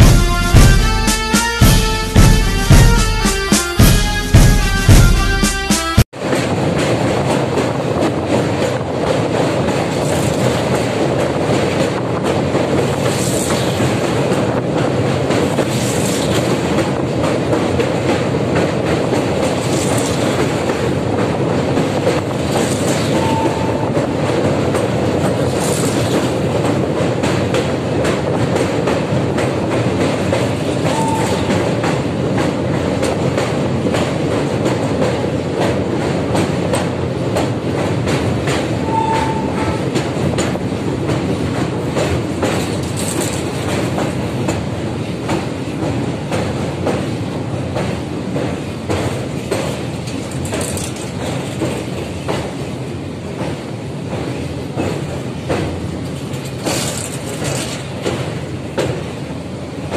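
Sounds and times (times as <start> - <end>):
train wheels rumbling on rails: 0.0 - 59.9
wheels clicking and clattering: 24.7 - 44.6, 47.8 - 52.5, 54.8 - 59.0.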